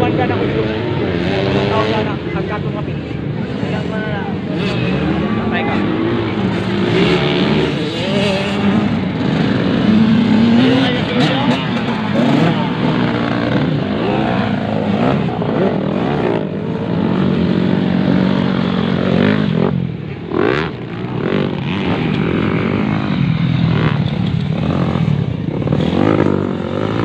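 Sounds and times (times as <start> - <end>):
motocross bikes revving: 0.0 - 27.0
motorbike accelerating hard: 3.4 - 27.0.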